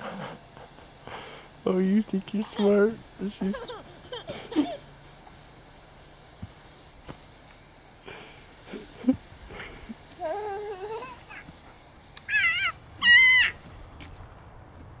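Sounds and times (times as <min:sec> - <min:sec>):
dog whining: 0:10.2 - 0:11.4, 0:12.3 - 0:13.6.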